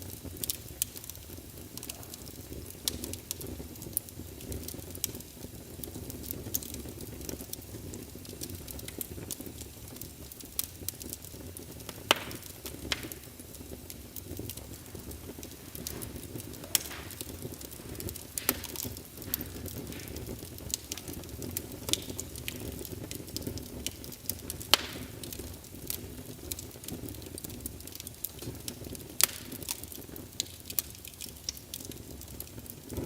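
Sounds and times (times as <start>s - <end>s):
logs burning in a fireplace: 0.0s - 33.0s
sharp pops: 12.1s - 13.3s, 15.4s - 21.1s.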